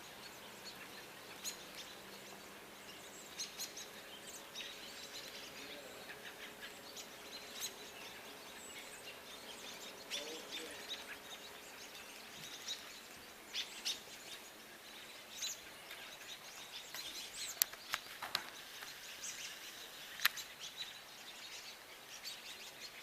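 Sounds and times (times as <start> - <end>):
background hiss: 0.0 - 23.0
birds chirping: 0.0 - 23.0.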